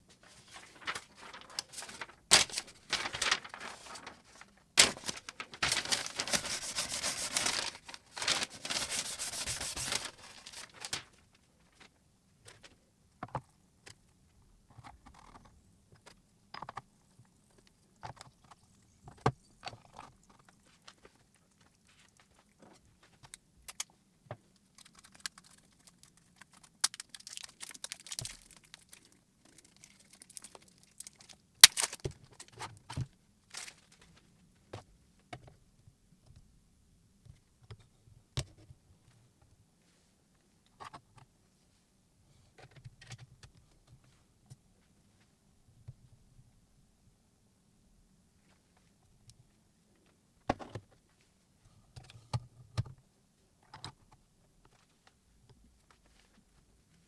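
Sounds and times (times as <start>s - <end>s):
dry scraping and rubbing: 6.2s - 7.7s, 8.6s - 10.2s.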